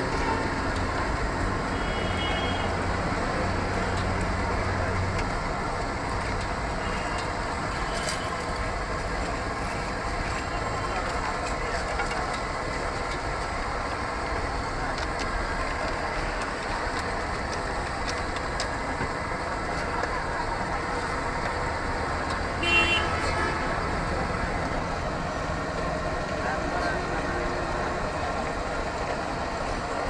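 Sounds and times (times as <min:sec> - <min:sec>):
street traffic noise: 0:00.0 - 0:30.0
vehicle horn: 0:22.6 - 0:23.6.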